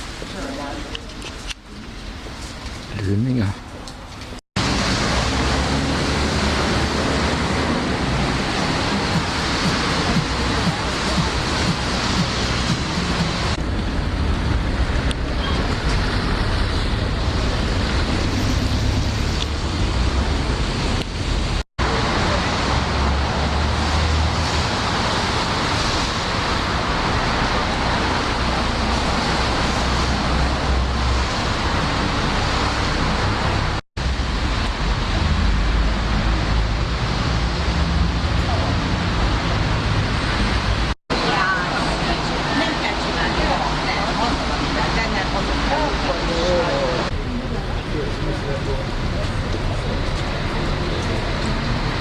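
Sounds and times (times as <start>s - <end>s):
rushing noise with low rumble: 0.0s - 52.0s.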